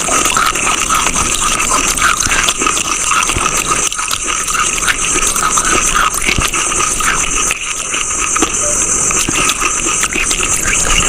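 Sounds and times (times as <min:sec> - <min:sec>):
chewing brittle mineral crunching: 0:00.0 - 0:11.0
steady high hiss: 0:00.0 - 0:11.0.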